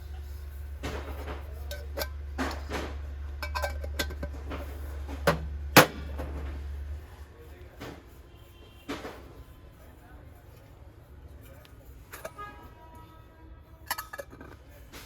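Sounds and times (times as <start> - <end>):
brass utensils clinking: 3.4 - 4.4.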